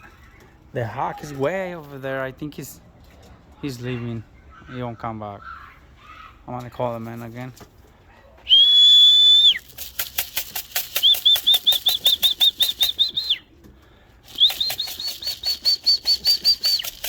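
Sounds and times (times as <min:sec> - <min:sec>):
person whistling: 0:08.5 - 0:09.7, 0:10.9 - 0:13.4, 0:14.3 - 0:16.9
fast rhythmic clatter: 0:09.6 - 0:13.3, 0:14.3 - 0:17.0.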